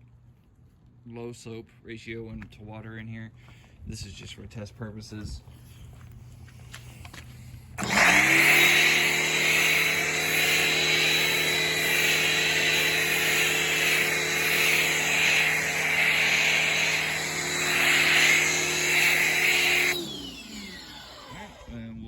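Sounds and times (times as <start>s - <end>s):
pressure washer motor whine: 7.8s - 22.0s.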